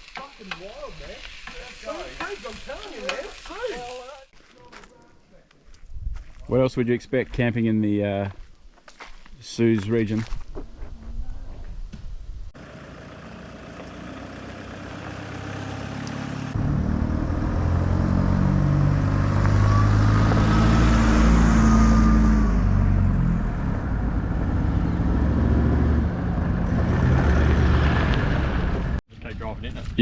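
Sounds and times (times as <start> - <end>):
off-road vehicle engine running: 12.6 - 29.0.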